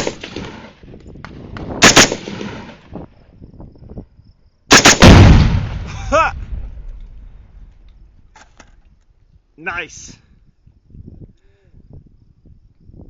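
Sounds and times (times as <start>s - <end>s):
rifle shots with echo: 0.0s - 2.8s, 4.7s - 7.3s
loud deep explosion boom: 5.0s - 7.8s.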